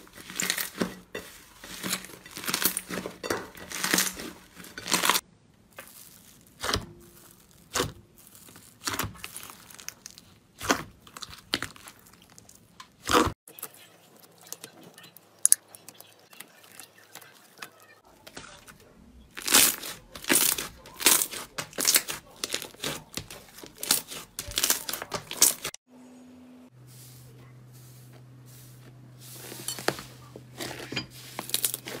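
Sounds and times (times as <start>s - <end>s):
slime crackling and popping: 1.8s - 3.0s, 3.6s - 13.3s, 19.4s - 25.7s.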